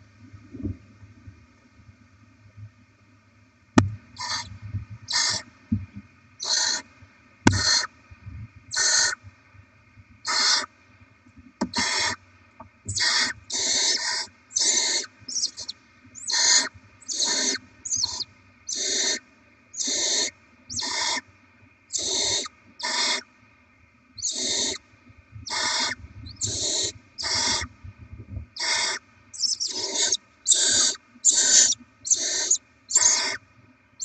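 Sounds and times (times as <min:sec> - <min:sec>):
faint electrical hum: 0:00.0 - 0:34.0
owl chicks hissing: 0:04.2 - 0:04.5, 0:05.1 - 0:05.4, 0:06.4 - 0:06.8, 0:07.5 - 0:07.9, 0:08.7 - 0:09.2, 0:10.3 - 0:10.7, 0:11.7 - 0:12.2, 0:12.9 - 0:19.2, 0:19.8 - 0:21.2, 0:21.9 - 0:23.2, 0:24.2 - 0:24.8, 0:25.4 - 0:27.7, 0:28.6 - 0:33.4.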